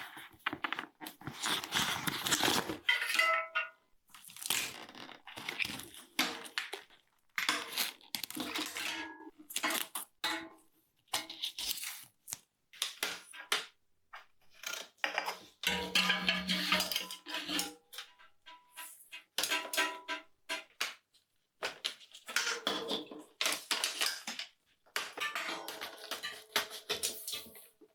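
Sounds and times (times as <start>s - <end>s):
small metal tools clinking: 15.7s - 17.7s.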